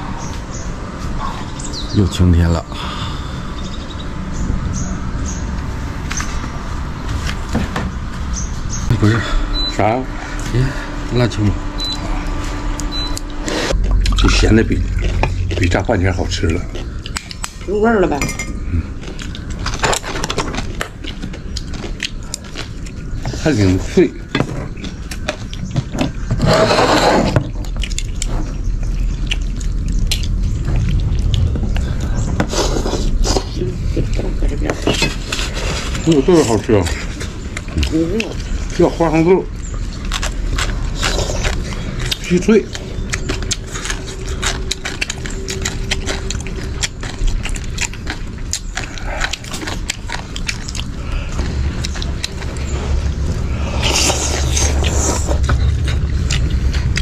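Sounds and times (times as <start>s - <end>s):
chewing crunchy peanuts: 11.4s - 17.7s, 18.6s - 57.0s
eating mouth noises: 26.4s - 57.0s
wet slurp: 53.5s - 55.5s.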